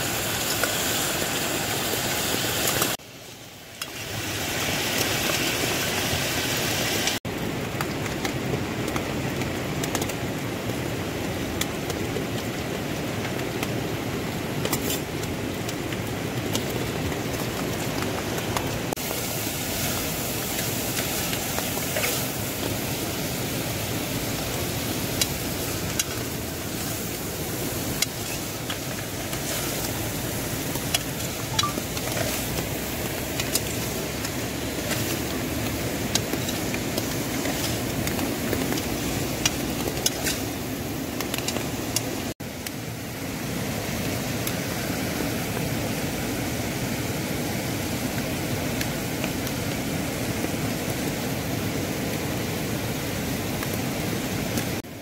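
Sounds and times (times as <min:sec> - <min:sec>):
onions sizzling in oil: 0:19.0 - 0:41.6.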